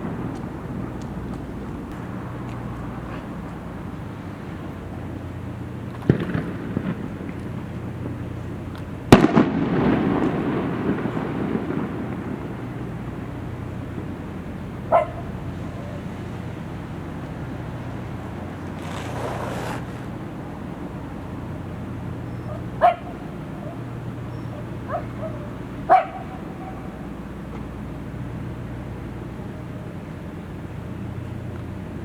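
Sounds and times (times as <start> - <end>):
fireworks bursting: 0.0 - 22.2
rolling rumble and crackle: 0.0 - 32.0.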